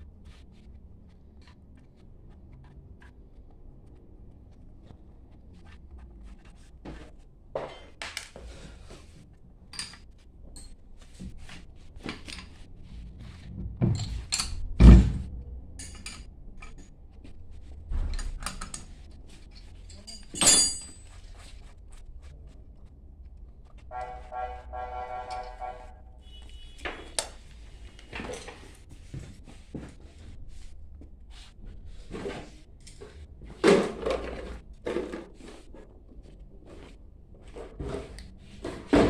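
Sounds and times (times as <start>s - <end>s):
metal tools clinking: 15.8s - 16.8s, 19.9s - 21.0s.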